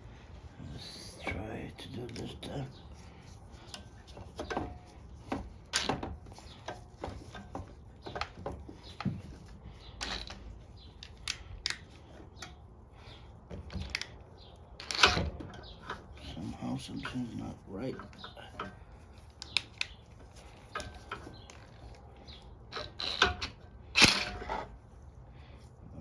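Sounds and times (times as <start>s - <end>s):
metal parts clicking and knocking: 3.6s - 12.6s, 13.5s - 16.2s, 17.9s - 24.7s.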